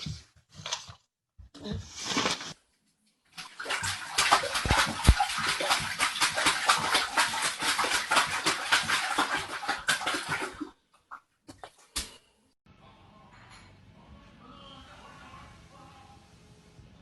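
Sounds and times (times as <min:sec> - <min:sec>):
dog lapping water: 0:03.4 - 0:10.7.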